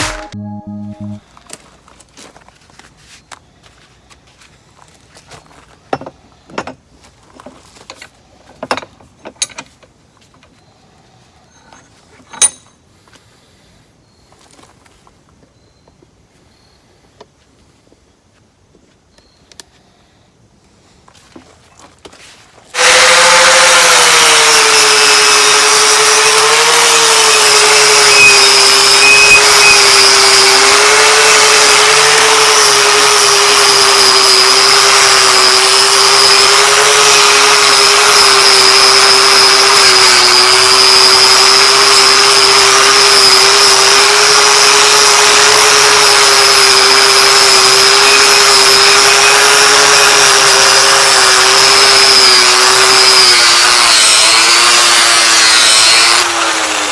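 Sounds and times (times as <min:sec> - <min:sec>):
power tool motor whining: 0:22.7 - 0:56.9.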